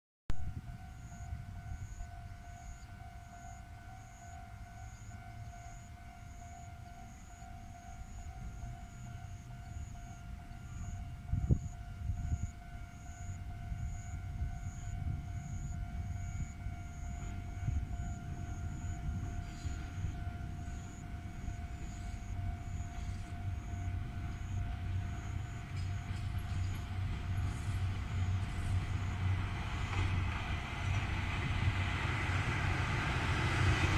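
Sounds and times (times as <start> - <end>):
train rail rumble: 0.3 - 33.9
high pulsing alarm tone: 0.4 - 33.9.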